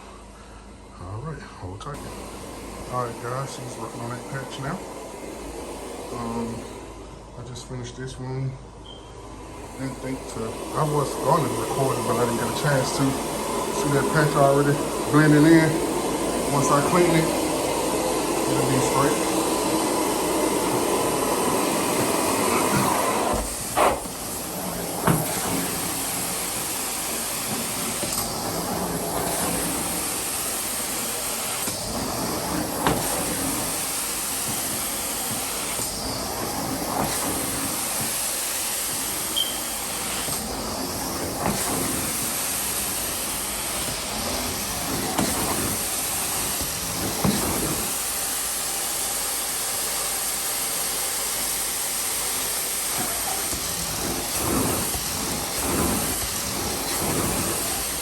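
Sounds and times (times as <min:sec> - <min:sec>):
carpet extractor spraying and sucking: 0:01.9 - 0:07.0, 0:09.5 - 0:58.0.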